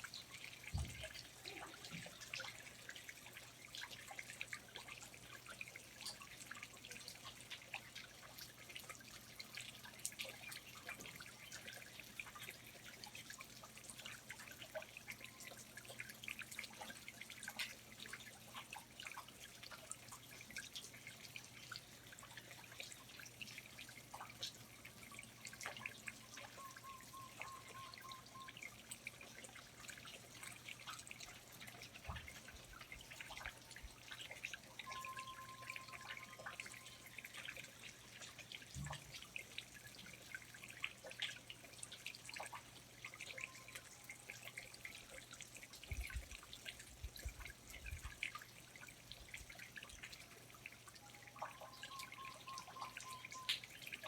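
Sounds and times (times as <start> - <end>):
water dripping: 0.0 - 54.0.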